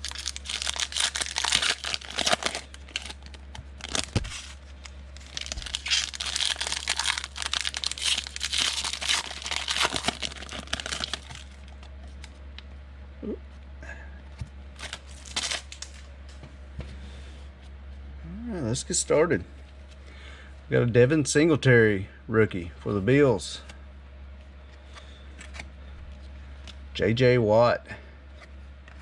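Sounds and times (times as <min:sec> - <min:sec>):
foil wrapper tearing and crinkling: 0:00.0 - 0:12.3, 0:14.8 - 0:16.1.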